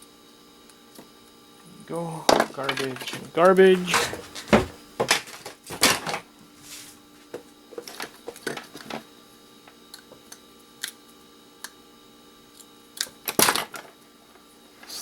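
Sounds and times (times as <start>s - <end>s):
electronic parts clattering: 2.3s - 6.2s, 13.3s - 13.9s.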